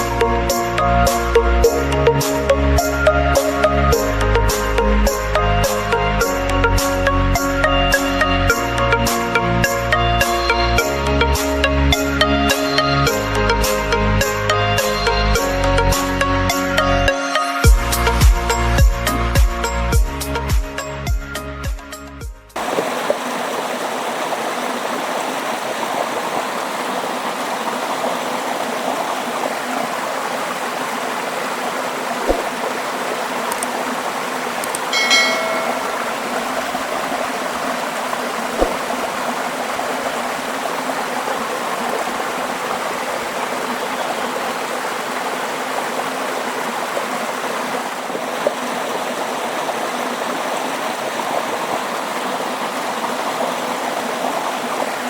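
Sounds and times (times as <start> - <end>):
waterfall roaring: 22.6 - 55.0.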